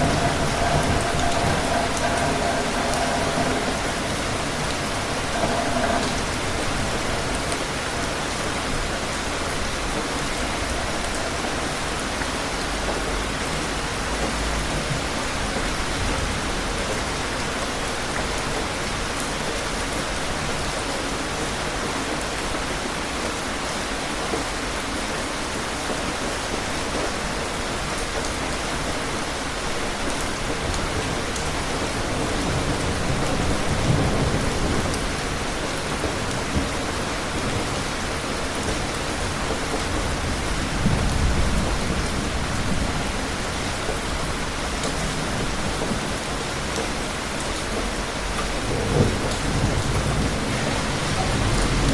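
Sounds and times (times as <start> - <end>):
low rumble: 0.0 - 11.4
heavy rain falling: 0.0 - 51.9.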